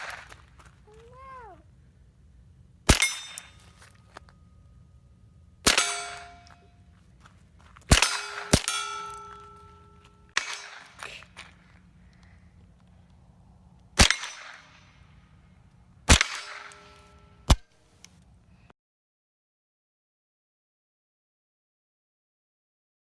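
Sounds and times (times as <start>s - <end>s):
rifle shots: 0.0s - 0.3s, 2.9s - 3.6s, 5.6s - 6.5s, 7.9s - 9.5s, 10.3s - 11.2s, 14.0s - 14.9s, 16.1s - 17.7s
steel targets ringing: 2.9s - 7.0s, 7.9s - 11.1s, 16.1s - 17.7s.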